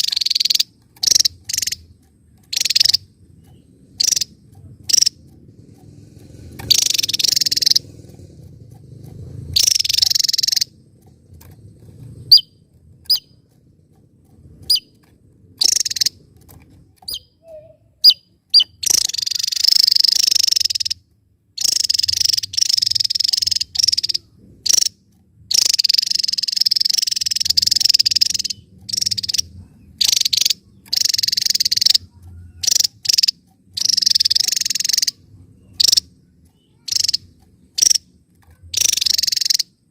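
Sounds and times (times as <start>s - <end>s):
bird buzzy trills: 0.0s - 39.9s
low rumble: 0.7s - 18.0s, 24.2s - 25.5s.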